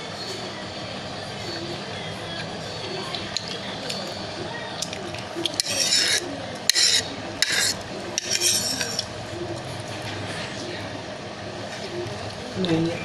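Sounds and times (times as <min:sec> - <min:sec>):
eating noodles rasping: 0:04.8 - 0:09.2.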